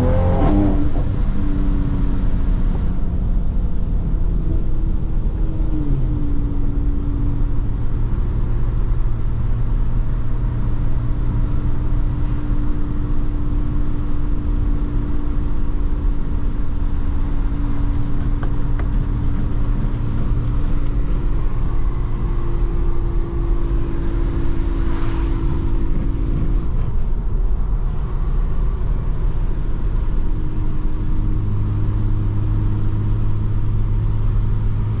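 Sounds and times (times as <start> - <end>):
car engine and exhaust droning: 0.0 - 35.0
tyre and road rumble: 15.8 - 35.0.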